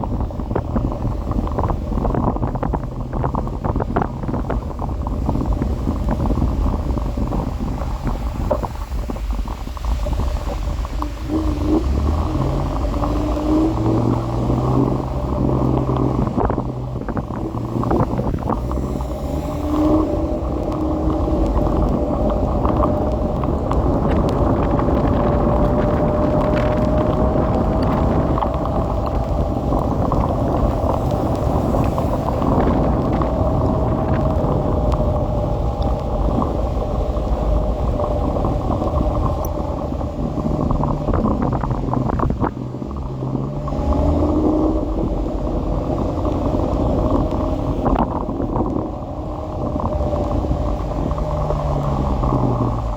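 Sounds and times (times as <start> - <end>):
wind rumble on microphone: 0.0 - 52.9
electric scooter motor whine: 10.9 - 42.5.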